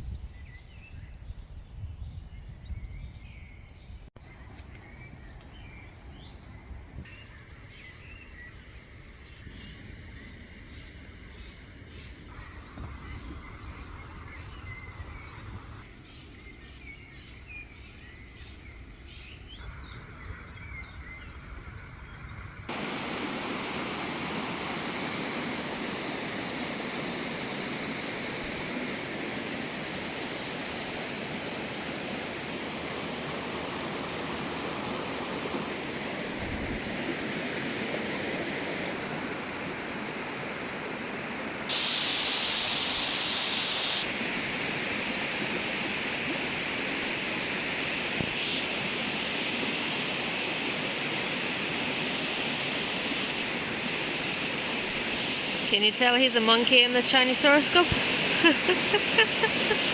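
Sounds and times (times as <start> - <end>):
faint chirping: 2.1 - 44.2, 47.8 - 48.8
stream water flowing over rocks: 22.7 - 59.9.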